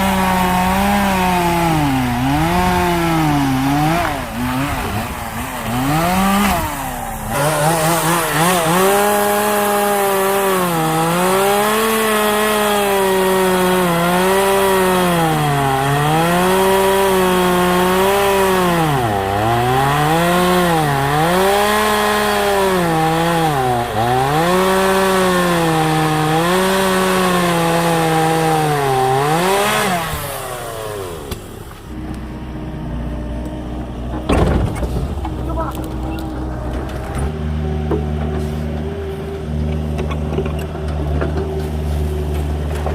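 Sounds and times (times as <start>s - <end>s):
chainsaw cutting wood: 0.0s - 32.2s.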